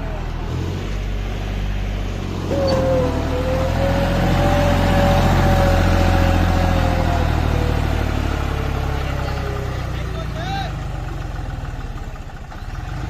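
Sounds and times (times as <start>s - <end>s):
tractor diesel engine running: 0.0s - 13.0s
steady whine: 2.5s - 10.2s.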